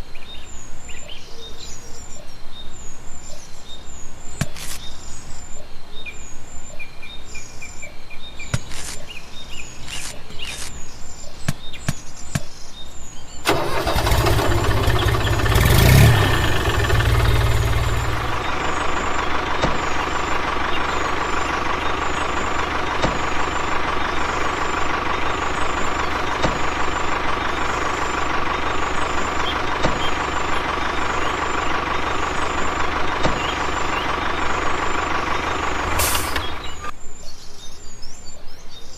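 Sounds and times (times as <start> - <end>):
engine starting and running: 13.4 - 36.9
constant high whine: 16.4 - 37.0
sharp knocks and clicks: 26.3 - 26.8, 29.6 - 30.2, 33.2 - 33.6.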